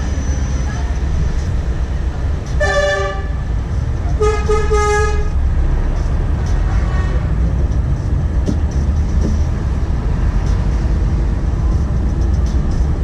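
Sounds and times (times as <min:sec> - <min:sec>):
truck engine rumble: 0:00.0 - 0:13.0
truck horn blasts: 0:02.5 - 0:03.5, 0:04.2 - 0:05.4.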